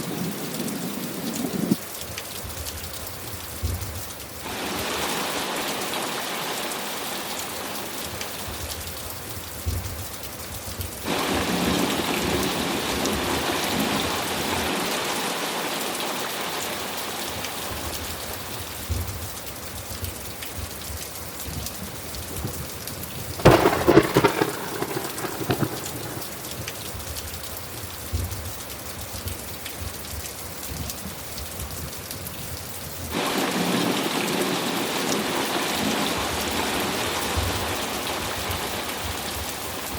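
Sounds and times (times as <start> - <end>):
heavy rain: 0.0 - 39.9
low thunder rumbling: 23.2 - 27.2
sharp thunderclap: 23.4 - 27.0.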